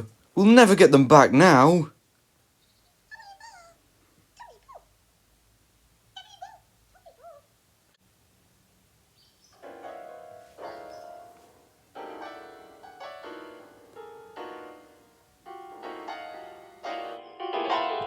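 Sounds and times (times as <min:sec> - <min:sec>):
slow sad piano chords: 0:09.6 - 0:18.0.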